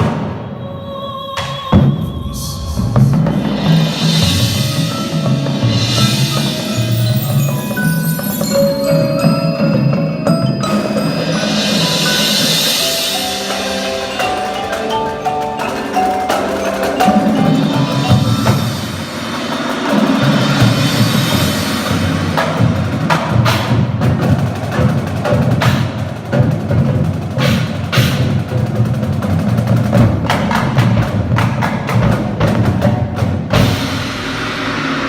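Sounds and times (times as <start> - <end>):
rapid drum and wood strikes: 1.7 - 35.0.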